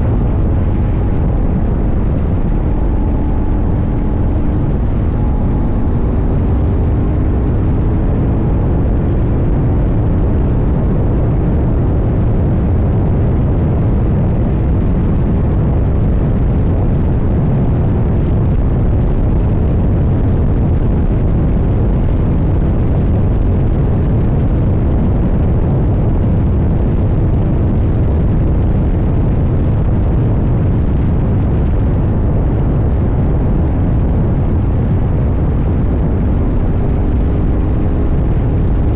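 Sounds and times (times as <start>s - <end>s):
motorcycle engine running: 0.0s - 13.4s
wind rushing on microphone: 0.0s - 38.9s.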